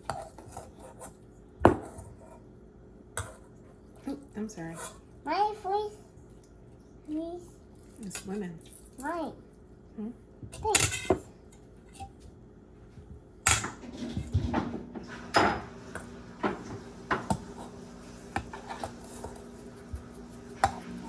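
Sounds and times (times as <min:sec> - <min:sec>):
dishes and utensils clattering: 0:13.5 - 0:21.0.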